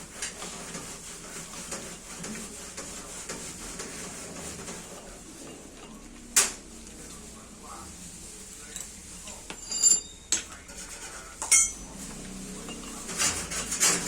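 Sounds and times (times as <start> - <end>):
metal tools clinking: 9.5 - 10.6, 11.4 - 11.9.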